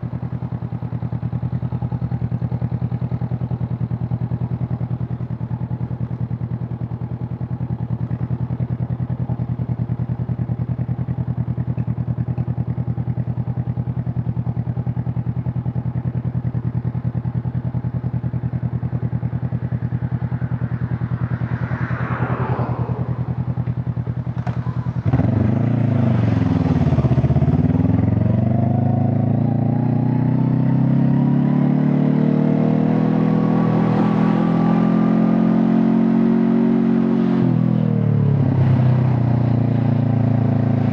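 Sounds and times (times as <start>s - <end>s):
motorcycle engine idling: 0.0s - 29.9s
motorcycle accelerating: 0.1s - 40.9s.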